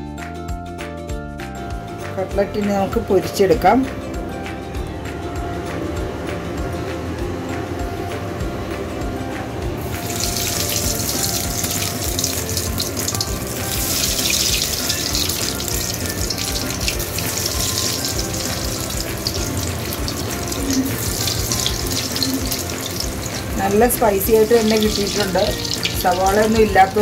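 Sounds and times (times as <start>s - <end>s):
chicken sizzling in hot oil: 9.8s - 27.0s.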